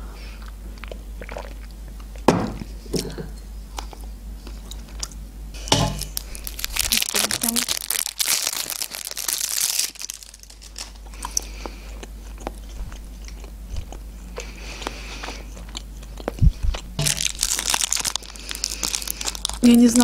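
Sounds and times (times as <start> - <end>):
close-up chewing: 0.2 - 2.3, 3.6 - 5.2, 6.0 - 20.0
plastic wrapper crinkling: 6.0 - 11.5, 16.2 - 20.0.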